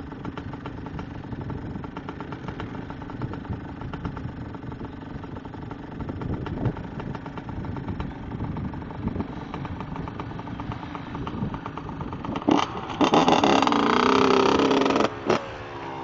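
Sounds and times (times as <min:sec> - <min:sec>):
motocross bike engine revving: 0:09.0 - 0:16.0.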